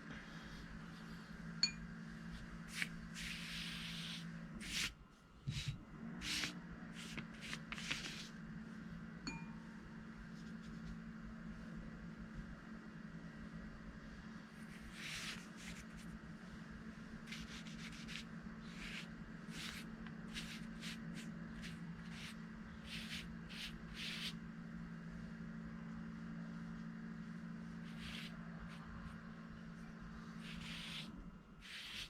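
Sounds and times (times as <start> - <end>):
steady low hum: 0.0 - 32.0
paint brush swishing on paper: 2.3 - 8.4, 14.6 - 16.2, 17.2 - 24.4, 27.8 - 29.2, 30.4 - 32.0.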